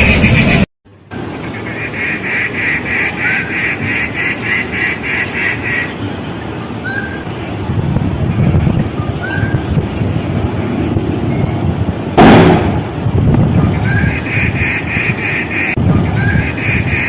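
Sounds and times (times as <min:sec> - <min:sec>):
bird harsh nasal calls: 0:01.4 - 0:06.0, 0:13.7 - 0:17.0.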